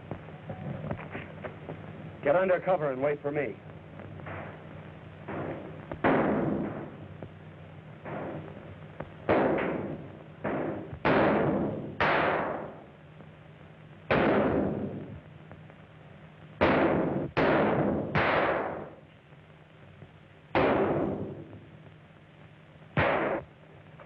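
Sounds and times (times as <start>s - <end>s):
gunshots with ringing echo: 5.3s - 7.0s, 8.0s - 8.5s, 9.3s - 12.8s, 14.1s - 15.0s, 16.6s - 19.0s, 20.6s - 21.5s, 23.0s - 23.5s.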